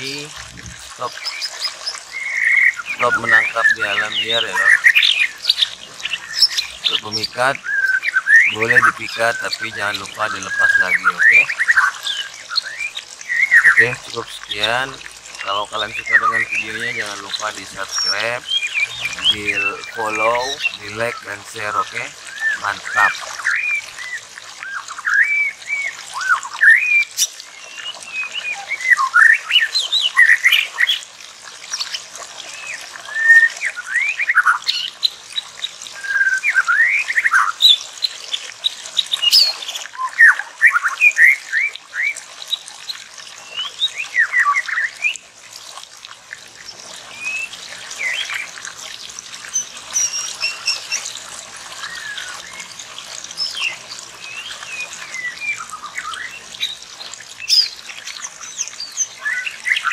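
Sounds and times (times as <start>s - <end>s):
songbird whistled calls: 49.6s - 51.0s.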